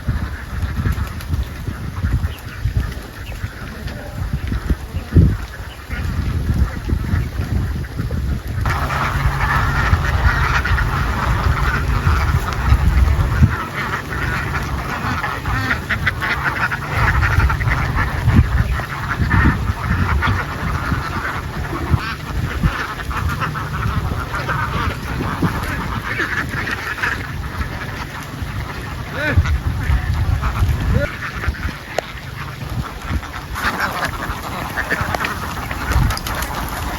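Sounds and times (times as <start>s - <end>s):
ducks quacking: 0.0s - 36.9s
low rumble: 8.6s - 26.1s.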